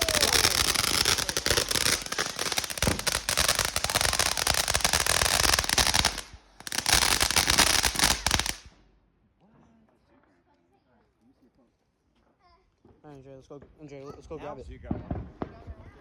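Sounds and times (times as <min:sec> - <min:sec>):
firework crackling: 0:00.0 - 0:08.8.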